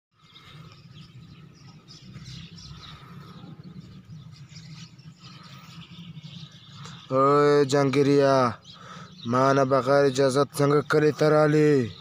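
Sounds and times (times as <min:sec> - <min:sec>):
small bird chirps: 0:00.2 - 0:12.0
low steady rumble: 0:00.4 - 0:07.1.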